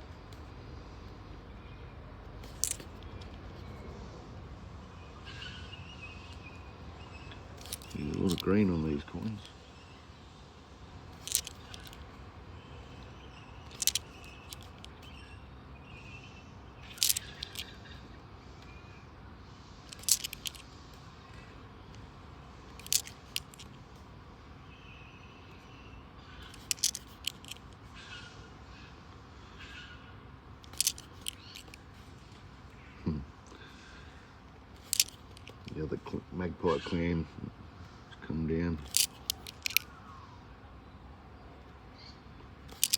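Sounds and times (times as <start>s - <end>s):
faint bird calls: 2.6s - 10.4s, 11.2s - 23.4s, 24.6s - 42.9s
coins clinking: 7.6s - 8.5s, 11.2s - 12.0s, 13.7s - 14.9s, 16.9s - 17.7s, 19.9s - 20.6s, 22.8s - 23.7s, 26.5s - 27.6s, 30.6s - 31.8s, 34.8s - 35.7s, 38.8s - 39.8s.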